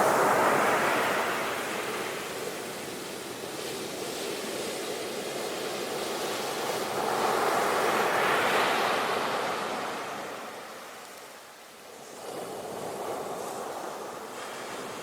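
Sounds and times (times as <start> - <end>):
waves breaking on beach: 0.0 - 11.0, 12.0 - 15.0.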